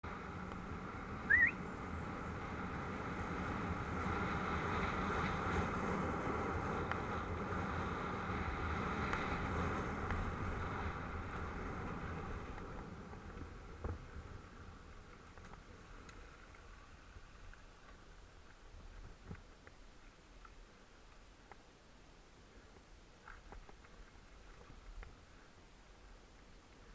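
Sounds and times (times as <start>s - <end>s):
bike tyres rolling on dirt: 0.0s - 26.9s.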